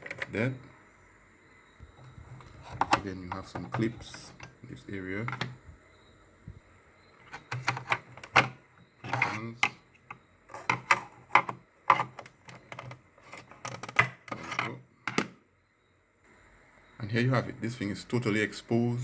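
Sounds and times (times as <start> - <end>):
plastic case scraping and rattling: 2.0 - 4.6, 7.2 - 15.3.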